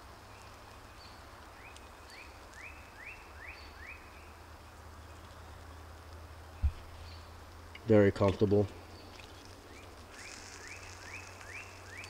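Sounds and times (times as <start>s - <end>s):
faint forest background: 0.0s - 12.0s
high bird chips: 9.0s - 12.0s.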